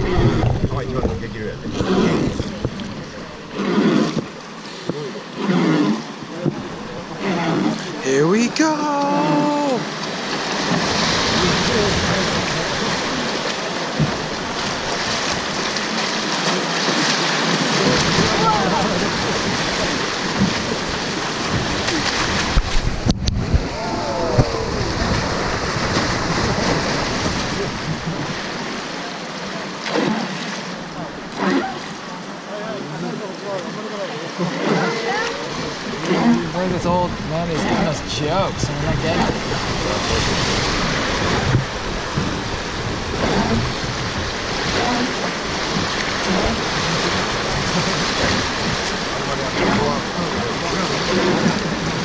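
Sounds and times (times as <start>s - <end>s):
river water rushing: 0.0s - 52.0s
faint voices: 6.1s - 10.0s, 23.6s - 25.5s, 30.8s - 40.5s.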